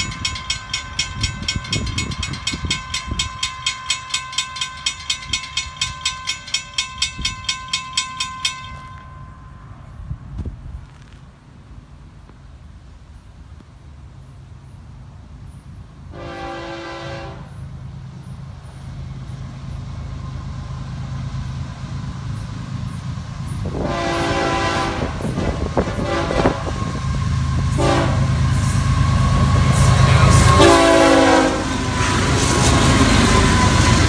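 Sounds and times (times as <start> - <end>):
diesel locomotive engine rumble: 0.0 - 34.0
locomotive horn: 16.1 - 17.7, 23.7 - 32.0.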